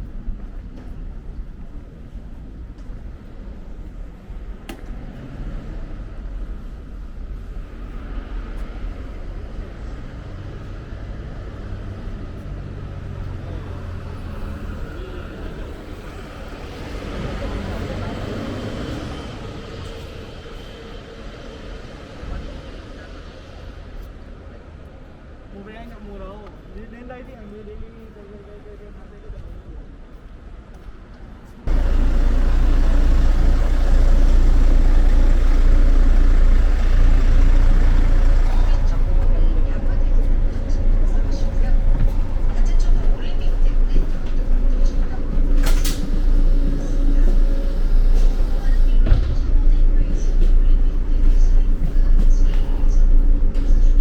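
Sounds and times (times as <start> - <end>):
vehicle rumble: 0.0 - 25.5, 29.6 - 54.0
road noise: 0.0 - 27.9, 28.6 - 54.0
low hum: 31.7 - 54.0.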